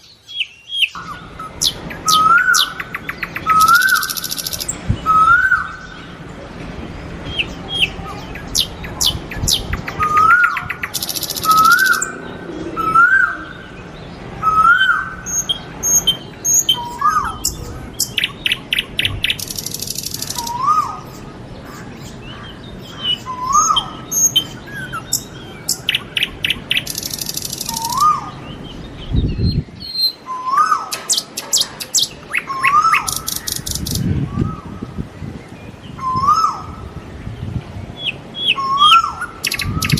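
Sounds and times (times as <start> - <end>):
bird chirps and trills: 0.0 - 39.9
rising whistled bird call: 0.7 - 5.9, 8.6 - 13.8, 23.3 - 28.4.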